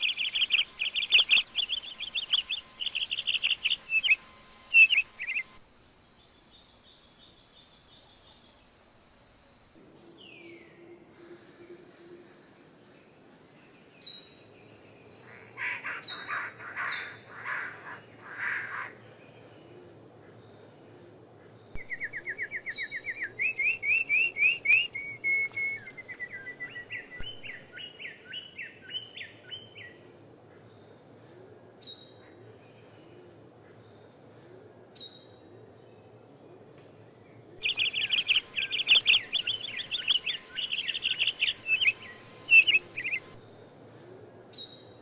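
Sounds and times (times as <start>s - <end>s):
bird trill: 0.0s - 5.6s, 21.8s - 29.7s, 37.6s - 43.4s
harsh bird calls: 0.0s - 5.6s, 15.3s - 19.1s, 21.8s - 29.2s, 37.6s - 43.4s
high bird chirps: 0.0s - 5.6s, 21.8s - 27.9s, 37.6s - 43.4s.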